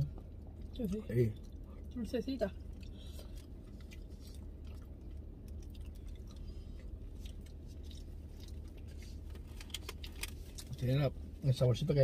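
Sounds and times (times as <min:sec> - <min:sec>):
low steady hum: 0:00.0 - 0:12.0
person chewing: 0:02.6 - 0:10.7.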